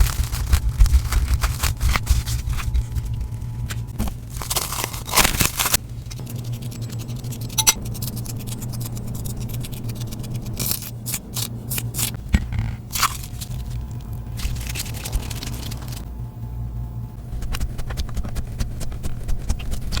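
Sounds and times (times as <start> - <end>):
slime crackling and scraping: 0.0 - 12.2, 12.9 - 16.1.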